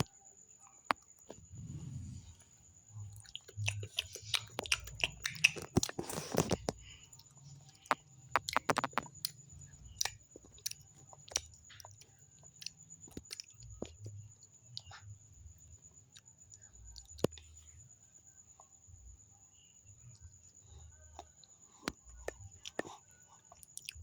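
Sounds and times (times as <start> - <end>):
child chewing soft candy: 1.2 - 24.0.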